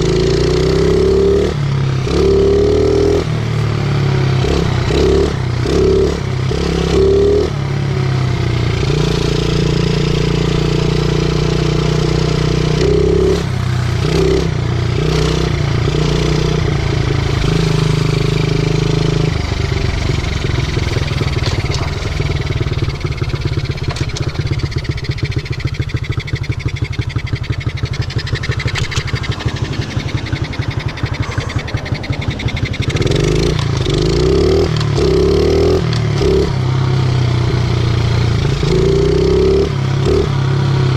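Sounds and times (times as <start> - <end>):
small motorcycle engine revving: 0.0 - 40.9.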